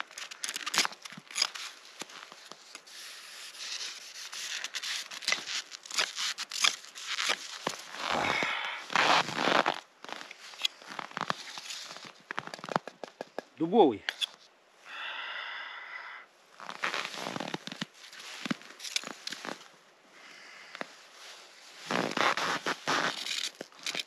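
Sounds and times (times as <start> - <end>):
knife scraping frozen fish: 3.1 - 7.8.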